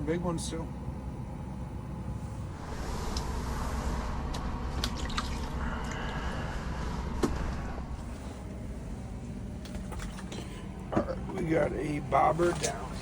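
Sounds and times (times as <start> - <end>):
water sloshing and dripping: 4.3 - 6.3, 9.6 - 11.5, 12.3 - 13.0.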